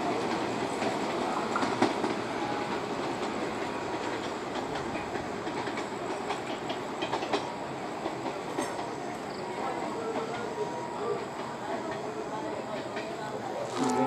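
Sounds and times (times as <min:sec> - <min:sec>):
train wheels clattering over rail joints: 0:00.1 - 0:09.0.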